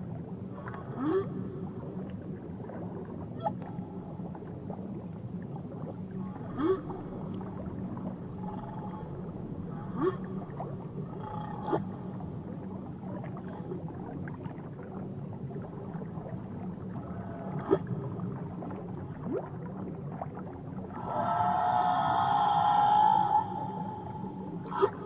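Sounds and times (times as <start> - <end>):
low underwater rumble: 0.0 - 25.0
whale calls: 6.2 - 12.3, 20.9 - 25.0.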